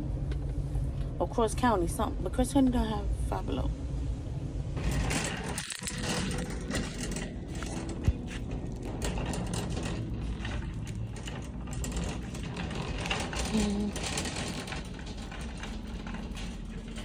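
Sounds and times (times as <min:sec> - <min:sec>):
clicking and rattling: 0:04.8 - 0:17.0.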